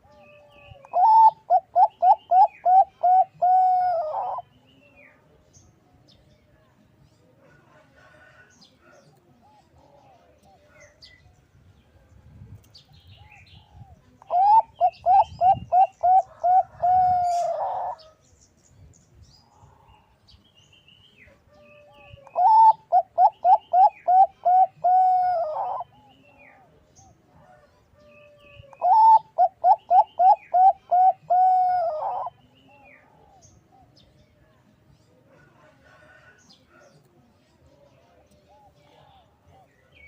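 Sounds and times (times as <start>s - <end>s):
dove cooing: 0.0s - 4.5s, 13.2s - 18.1s, 21.5s - 26.7s, 28.6s - 34.0s.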